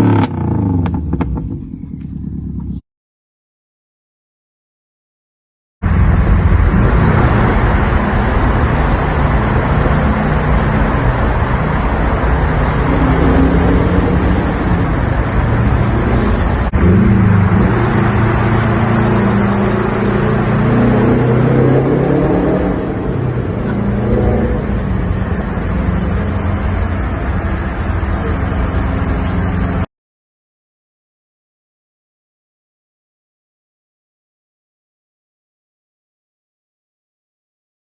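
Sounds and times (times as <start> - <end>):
car engine revving: 0.0 - 2.8, 5.9 - 29.9.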